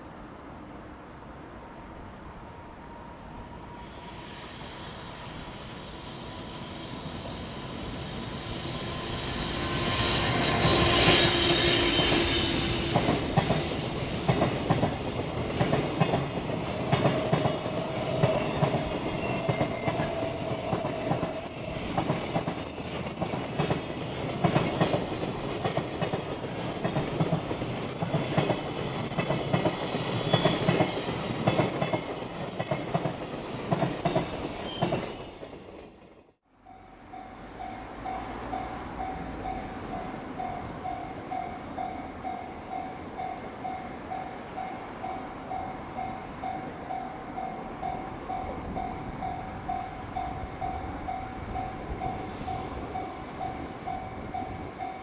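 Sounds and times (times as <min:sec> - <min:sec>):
electric locomotive passing: 0:00.2 - 0:55.0
train wheels clattering over rails: 0:09.5 - 0:35.2.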